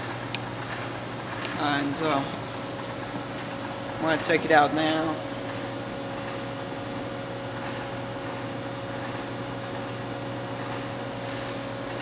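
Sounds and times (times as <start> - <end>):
machine hum with hiss: 0.0 - 12.0.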